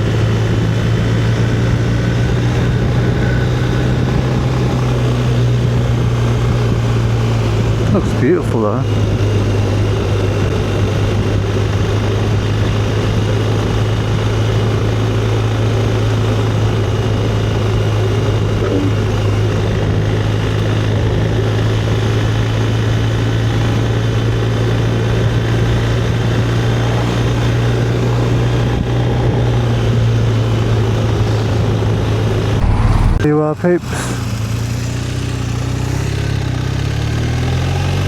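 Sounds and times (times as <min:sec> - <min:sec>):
motorcycle engine cruising: 0:00.0 - 0:33.4
steady rushing noise: 0:32.4 - 0:33.7.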